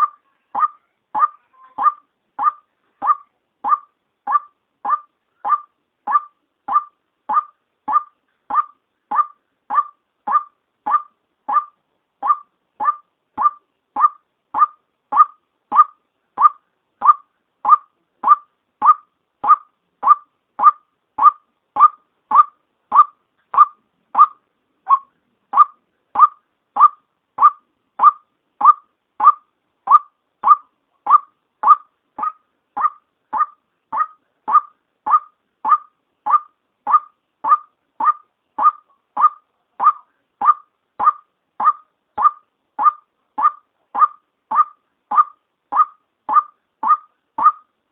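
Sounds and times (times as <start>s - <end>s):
waterhen calling short notes: 0.0s - 47.7s.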